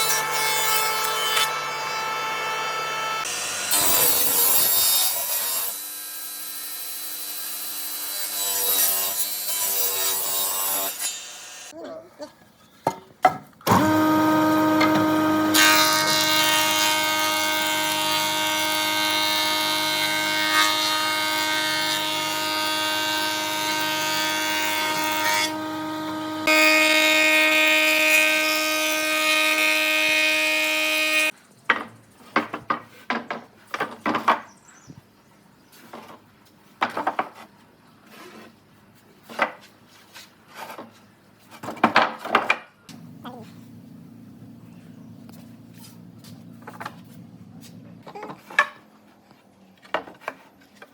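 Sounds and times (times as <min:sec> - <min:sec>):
woodworking power tool cutting wood: 0:00.0 - 0:11.7, 0:13.6 - 0:31.3.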